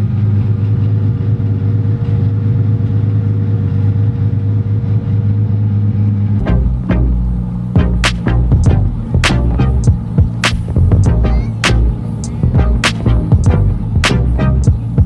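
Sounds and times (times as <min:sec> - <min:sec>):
car engine running at low revs: 0:00.0 - 0:15.0
sharp clicks: 0:08.0 - 0:08.4, 0:10.4 - 0:10.9, 0:11.6 - 0:13.2.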